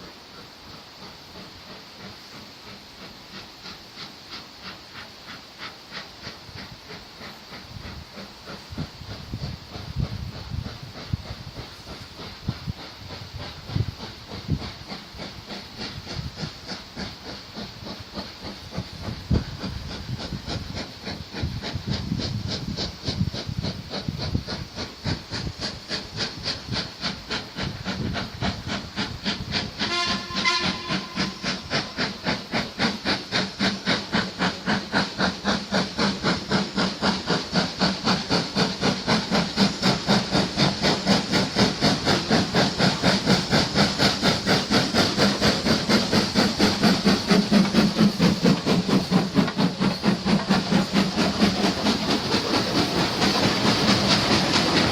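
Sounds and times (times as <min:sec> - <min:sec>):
steam locomotive exhaust beats: 0:00.0 - 0:54.9
short train whistle: 0:29.8 - 0:31.7.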